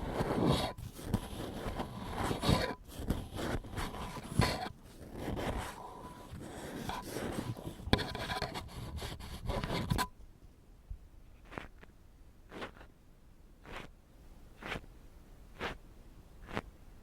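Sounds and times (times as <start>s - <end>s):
ear pick scraping and rubbing: 0.0s - 10.1s, 11.4s - 11.9s, 12.5s - 12.9s, 13.6s - 13.9s, 14.6s - 14.9s, 15.5s - 15.8s, 16.4s - 16.7s.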